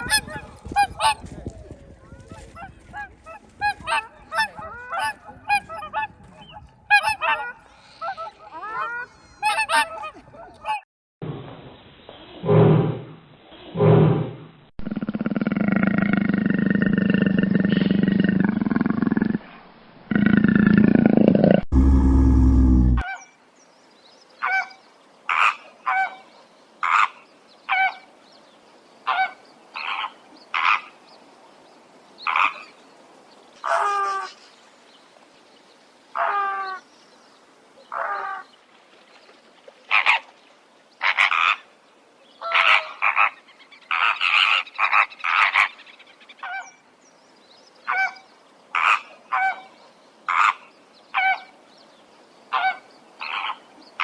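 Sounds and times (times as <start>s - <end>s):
long low animal call: 14.8s - 23.2s
brief deep animal burst: 18.5s - 23.0s.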